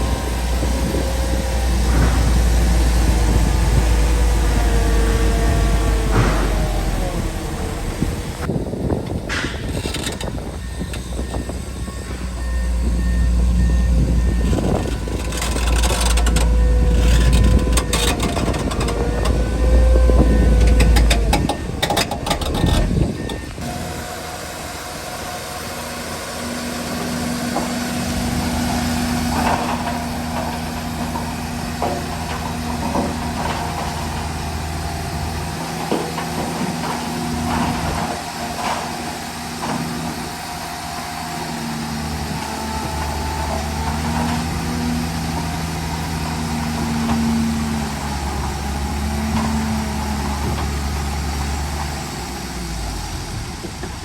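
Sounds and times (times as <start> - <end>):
heavy diesel engine under load: 0.0 - 54.0
machinery clattering: 13.8 - 23.7.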